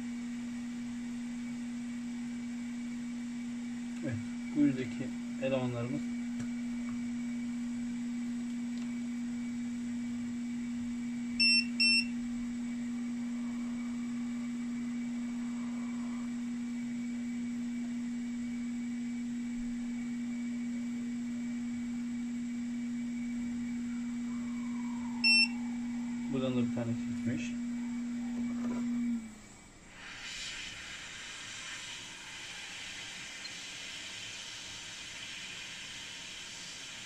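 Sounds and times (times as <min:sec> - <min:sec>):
steady low hum: 0:00.0 - 0:37.0
short high multimeter beeps: 0:11.4 - 0:12.1, 0:25.2 - 0:25.6.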